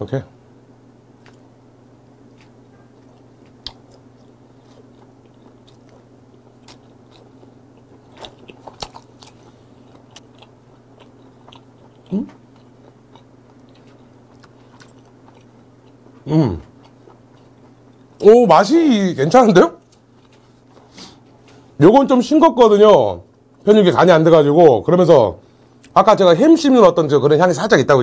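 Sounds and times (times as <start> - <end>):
steady low hum: 0.0 - 28.0
wet chewing clicks and smacks: 2.3 - 18.2
person humming mm: 12.1 - 12.4, 16.2 - 16.7.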